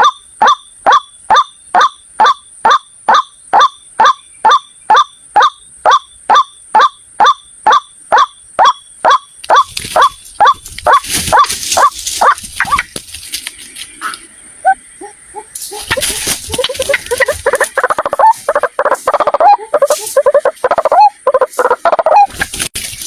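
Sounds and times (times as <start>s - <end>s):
waterhen calling: 0.0s - 13.0s, 13.7s - 22.5s
rustling hiss: 9.6s - 23.0s.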